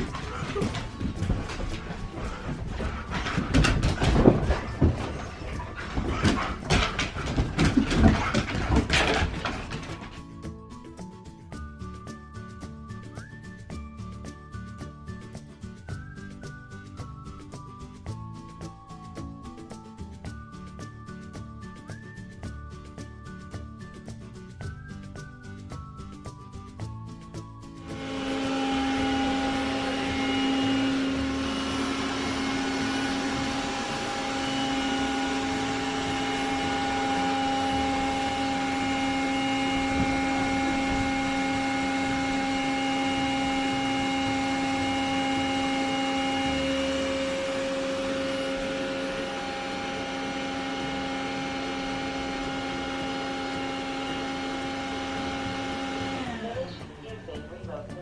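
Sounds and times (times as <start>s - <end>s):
robot vacuum running: 27.8s - 57.0s.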